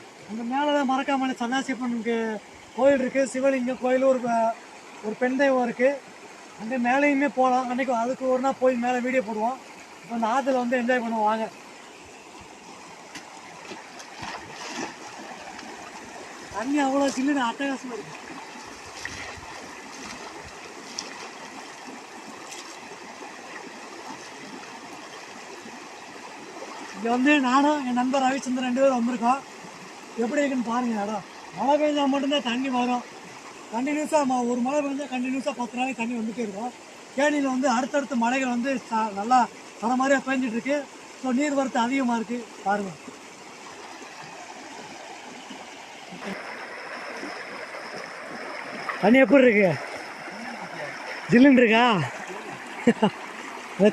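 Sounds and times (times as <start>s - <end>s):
river water rushing over rocks: 0.0s - 53.9s.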